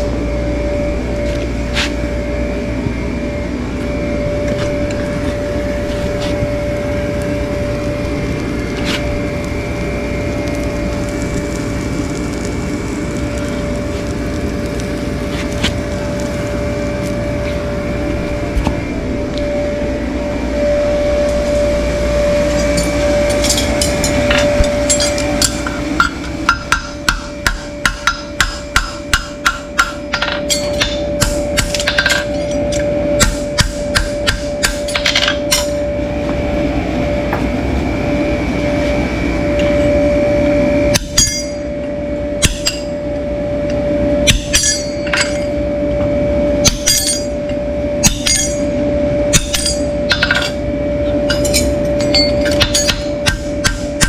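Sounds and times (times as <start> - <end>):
steady hum: 0.0 - 54.0
hammer striking metal: 22.6 - 35.8, 41.0 - 41.6, 42.4 - 42.9, 44.3 - 45.5, 46.6 - 47.4, 48.0 - 48.7, 49.3 - 50.6, 51.3 - 54.0.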